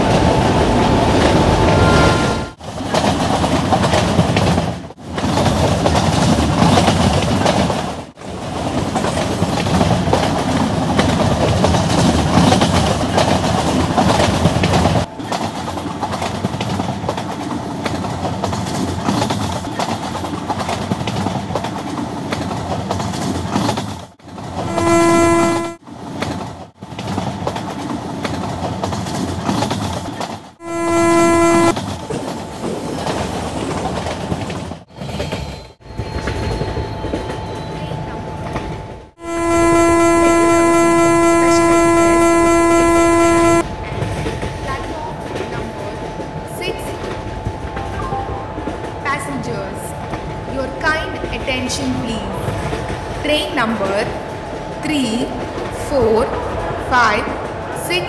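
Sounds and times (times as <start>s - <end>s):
train wheels rumbling on rails: 0.0s - 58.0s
train horn blast: 24.6s - 25.8s, 30.6s - 31.8s, 39.2s - 43.7s.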